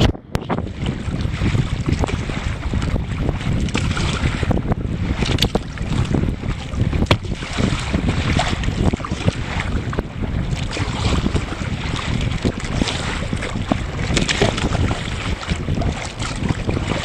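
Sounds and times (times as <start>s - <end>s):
water splashing against hull: 0.0s - 17.0s
wind buffeting microphone: 0.0s - 17.0s.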